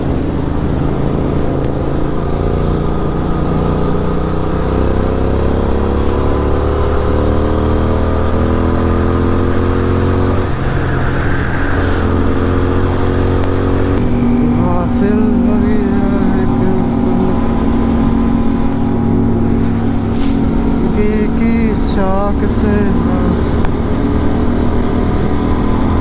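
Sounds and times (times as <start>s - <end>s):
motorcycle accelerating: 0.0s - 26.0s.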